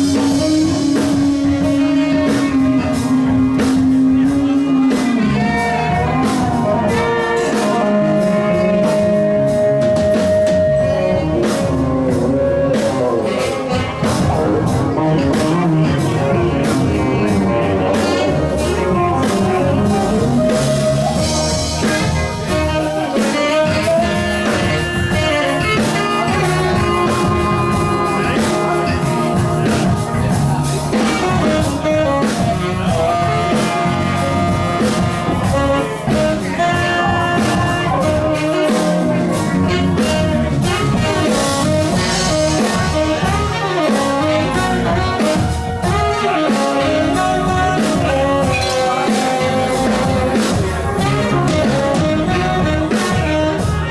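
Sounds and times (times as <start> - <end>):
blues-rock band playing live: 0.0 - 53.9
saxophones holding notes: 0.0 - 53.9.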